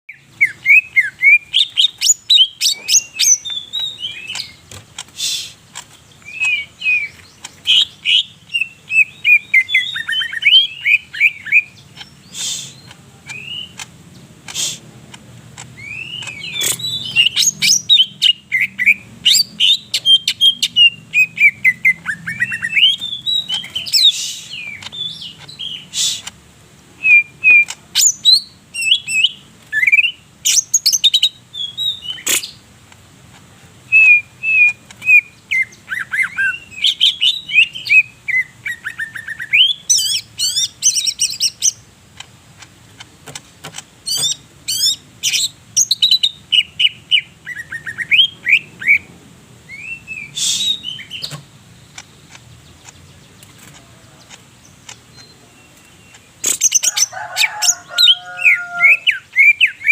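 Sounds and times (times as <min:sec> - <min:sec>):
bird singing whistled song: 0:00.1 - 0:04.6, 0:06.2 - 0:13.8, 0:15.8 - 0:26.2, 0:27.0 - 0:32.6, 0:33.9 - 0:41.8, 0:44.1 - 0:49.1, 0:49.7 - 0:51.4, 0:58.1 - 0:59.9.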